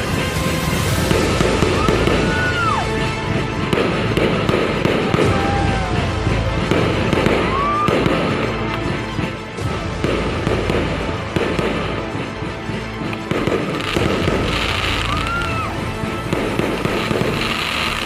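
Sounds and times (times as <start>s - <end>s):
fireworks whistle: 0.0s - 8.5s, 13.3s - 18.0s
fireworks crackling and popping: 0.0s - 18.0s.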